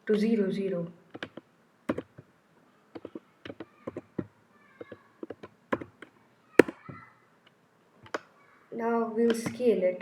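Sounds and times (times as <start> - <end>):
keyboard and mouse clicking: 1.1 - 2.2, 3.0 - 6.9, 8.0 - 8.3, 9.3 - 9.6.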